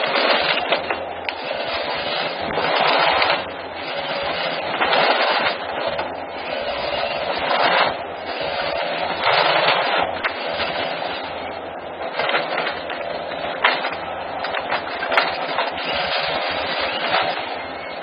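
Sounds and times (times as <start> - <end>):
wood snapping and splintering: 0.0 - 11.2, 12.0 - 17.5
forestry machine din: 0.0 - 18.0.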